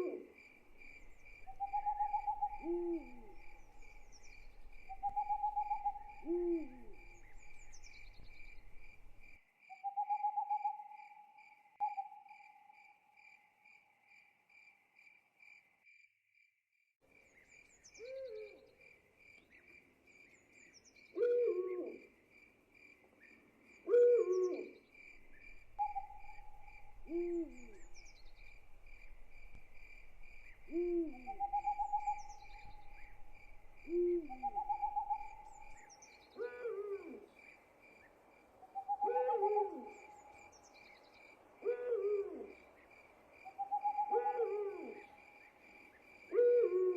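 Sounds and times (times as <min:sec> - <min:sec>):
owl hooting: 0:00.0 - 0:09.2, 0:18.0 - 0:18.7, 0:21.2 - 0:22.0, 0:23.9 - 0:37.3, 0:38.7 - 0:40.5, 0:41.6 - 0:42.6, 0:43.5 - 0:45.2, 0:46.3 - 0:46.9
cricket trill: 0:00.4 - 0:10.7, 0:25.0 - 0:36.1.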